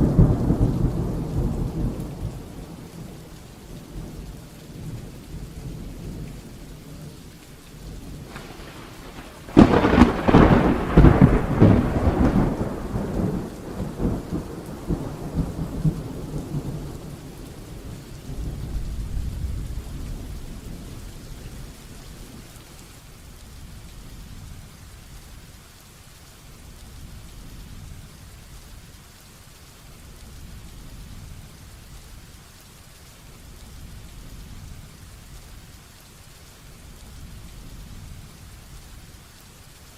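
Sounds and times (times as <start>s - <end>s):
thunderclap and rumble: 0.0s - 7.2s, 7.8s - 24.7s
heavy rain: 0.0s - 39.9s.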